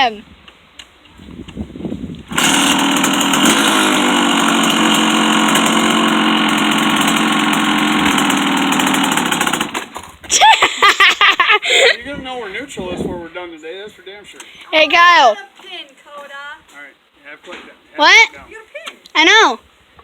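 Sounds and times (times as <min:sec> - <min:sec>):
dirt bike engine running: 0:02.2 - 0:10.2.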